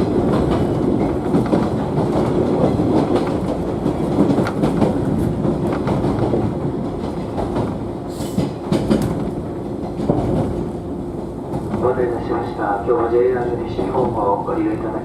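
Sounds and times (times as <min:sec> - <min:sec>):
wheels clicking over rail joints: 0:00.0 - 0:10.7
train car rumble: 0:00.0 - 0:15.0.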